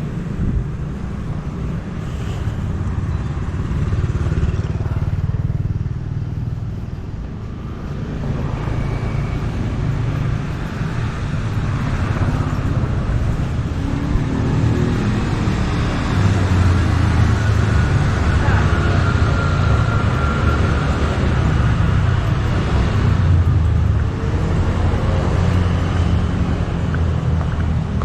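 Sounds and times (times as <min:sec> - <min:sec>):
motorbikes and cars passing: 0:00.0 - 0:28.0.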